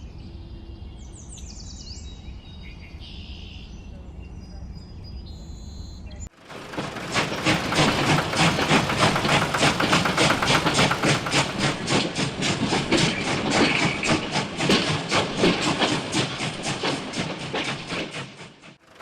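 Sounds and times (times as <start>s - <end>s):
small engine chugging: 6.3s - 19.0s.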